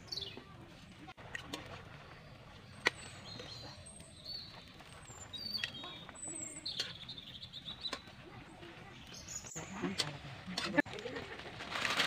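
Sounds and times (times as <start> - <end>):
birds chirping: 0.0 - 1.1, 1.7 - 10.5.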